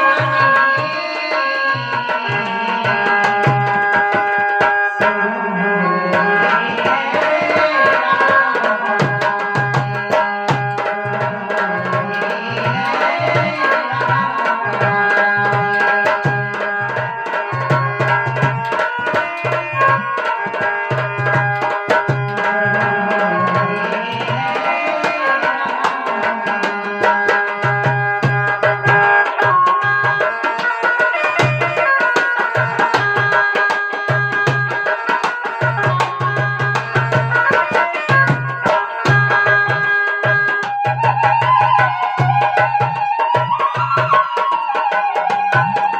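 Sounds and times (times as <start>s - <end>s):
held melodic line: 0.0s - 45.9s
tabla playing brisk rhythm: 0.0s - 45.9s.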